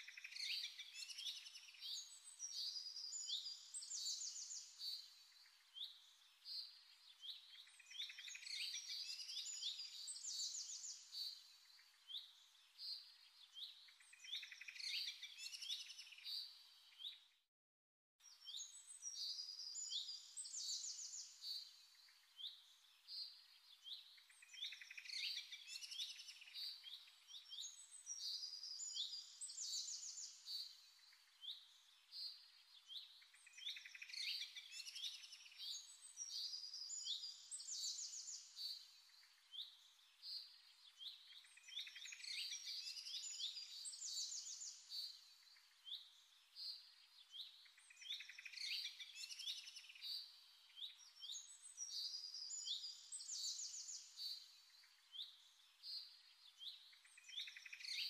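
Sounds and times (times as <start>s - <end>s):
small birds chirping: 0.0s - 17.4s, 18.2s - 58.0s.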